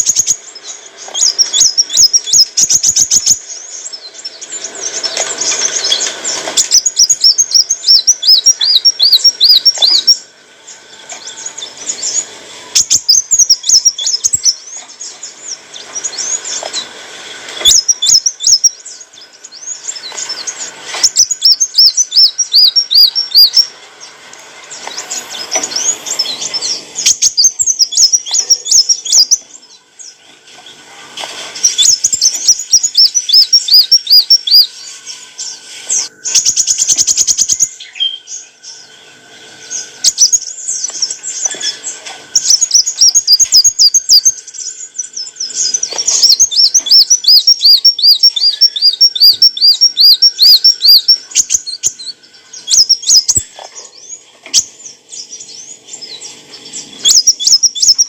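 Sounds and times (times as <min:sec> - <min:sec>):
sunbird chirping: 0:00.0 - 0:58.0.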